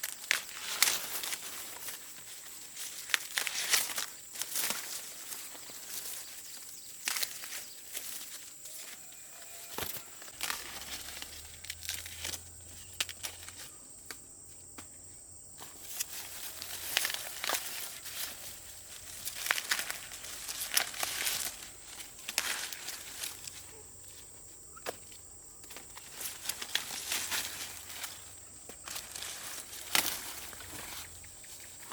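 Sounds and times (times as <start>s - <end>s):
dry plants rustling and crackling: 0.0s - 31.9s
footsteps: 7.1s - 15.0s.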